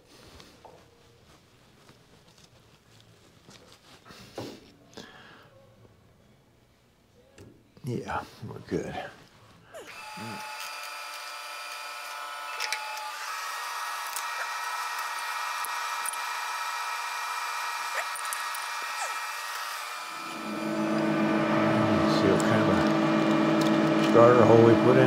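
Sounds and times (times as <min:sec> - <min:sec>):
electric drill whining: 0:09.8 - 0:25.0.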